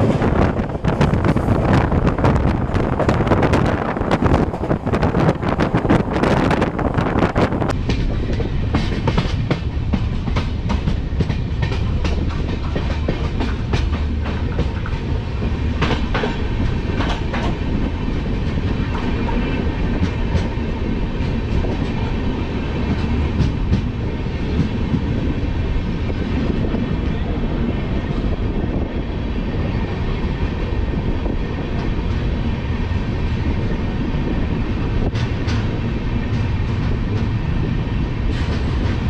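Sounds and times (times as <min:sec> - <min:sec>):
train coach rumbling on track: 0:00.0 - 0:39.0
wheels clacking over rail joints: 0:07.6 - 0:25.2, 0:35.0 - 0:37.5.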